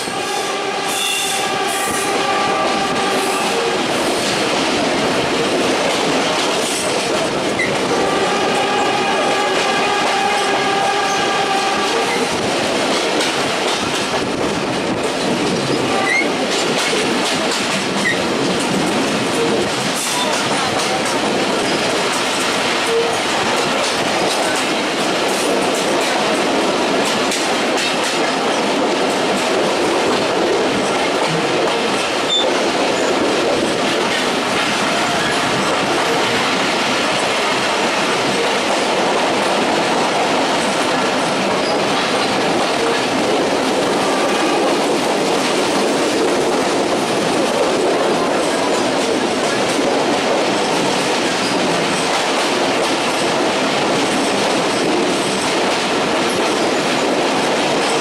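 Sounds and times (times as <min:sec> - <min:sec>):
train horn: 0:00.0 - 0:03.8, 0:07.9 - 0:12.4, 0:15.9 - 0:16.3, 0:43.9 - 0:44.9
train wheels rumbling on rails: 0:00.0 - 0:58.0.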